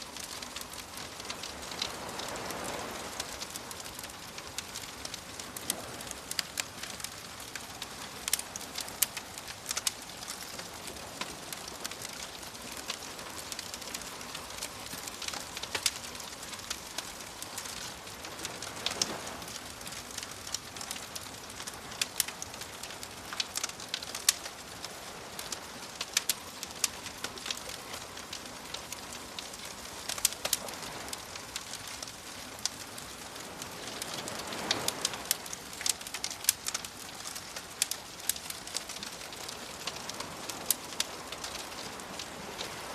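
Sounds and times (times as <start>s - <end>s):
ocean waves: 0.0s - 42.9s
wood fire crackling and popping: 0.0s - 42.9s.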